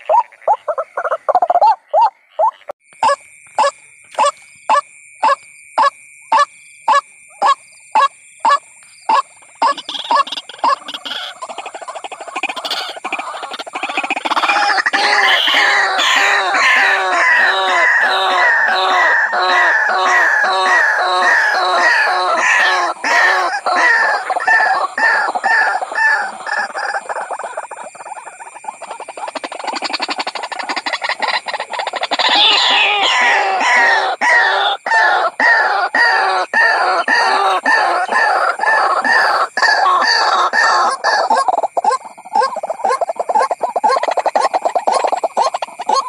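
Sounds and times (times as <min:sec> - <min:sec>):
waterhen calling: 0:00.0 - 0:46.0.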